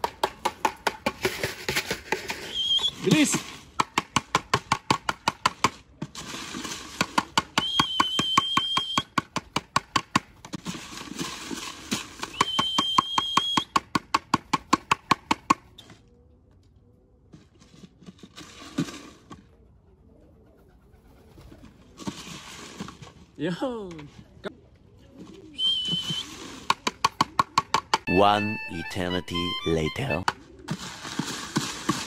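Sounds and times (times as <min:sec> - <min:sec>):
shuffling: 0:01.2 - 0:03.8, 0:21.2 - 0:26.8
high electronic beep: 0:28.1 - 0:30.2.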